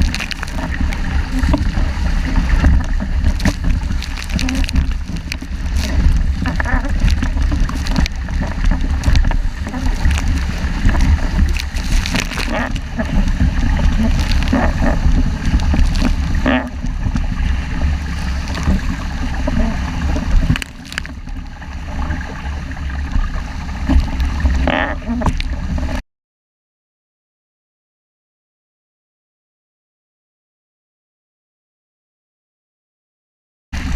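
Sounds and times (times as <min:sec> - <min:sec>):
water splashing against hull: 0:00.0 - 0:26.0
wind buffeting microphone: 0:00.0 - 0:26.0.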